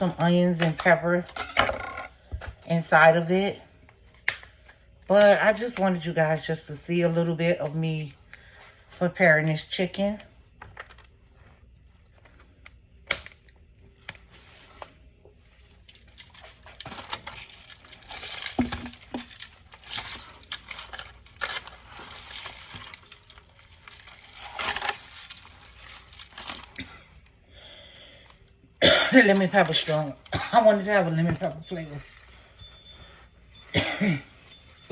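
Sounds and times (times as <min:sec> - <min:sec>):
rustling and crinkling: 0:03.8 - 0:27.4, 0:29.2 - 0:34.9.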